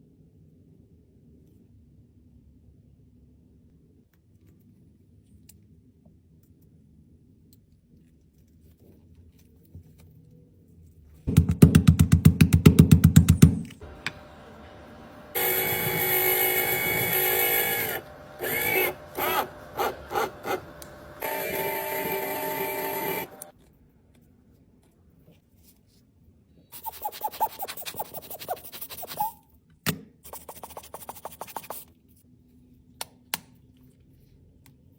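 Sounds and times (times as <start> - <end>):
sharp clicks: 13.3 - 23.5
tool scraping cosmetic product: 13.4 - 23.5, 26.8 - 29.3, 30.3 - 31.8.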